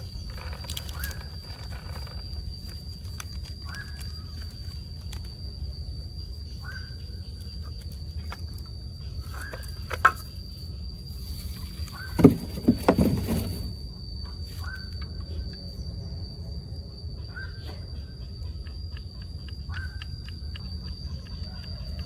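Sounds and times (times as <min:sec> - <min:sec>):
high insect-like trill: 0:00.0 - 0:22.0
knocks and clatter: 0:12.2 - 0:13.7.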